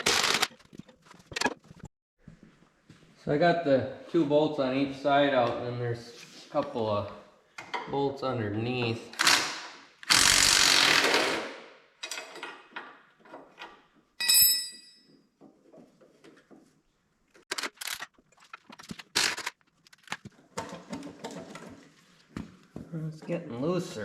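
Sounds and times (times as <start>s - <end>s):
power tool burst: 9.2s - 11.5s
metal clink with ring: 14.2s - 15.1s.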